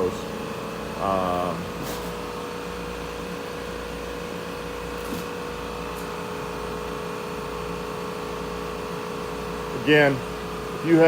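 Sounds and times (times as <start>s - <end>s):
machine noise: 0.0s - 3.8s.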